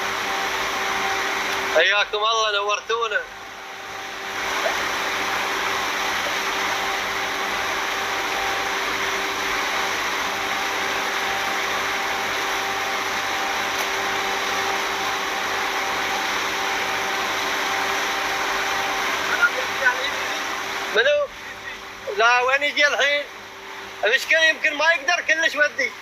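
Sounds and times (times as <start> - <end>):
motor humming: 3.2 - 22.2.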